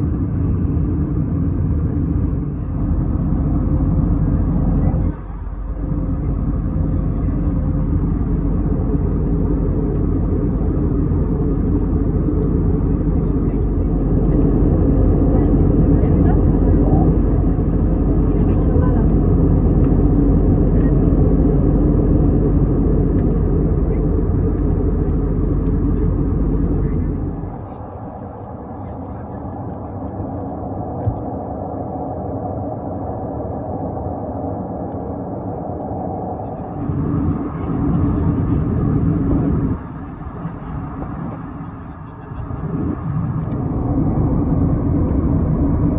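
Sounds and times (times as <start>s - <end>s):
jet engine rumble in cabin: 0.0s - 45.9s
rushing air: 41.0s - 45.9s.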